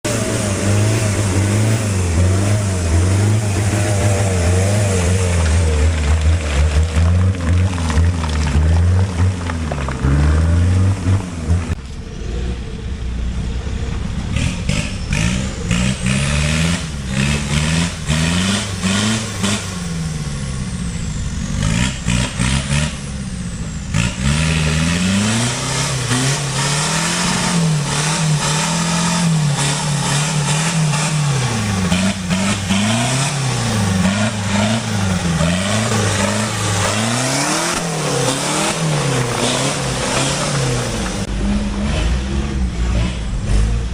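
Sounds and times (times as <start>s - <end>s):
off-road vehicle engine revving: 0.0s - 43.9s.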